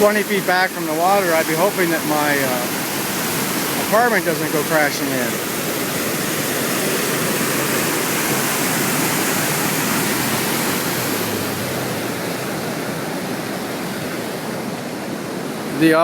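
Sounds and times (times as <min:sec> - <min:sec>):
rush of flooded river: 0:00.0 - 0:16.0.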